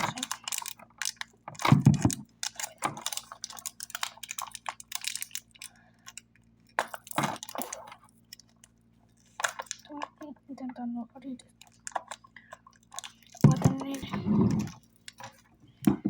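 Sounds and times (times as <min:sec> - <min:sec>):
plastic wrapper crackling: 0:00.0 - 0:10.1, 0:11.5 - 0:15.5.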